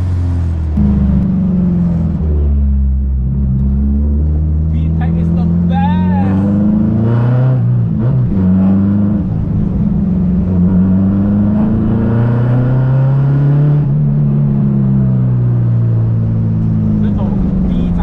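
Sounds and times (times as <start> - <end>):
car engine running: 0.0 - 11.8.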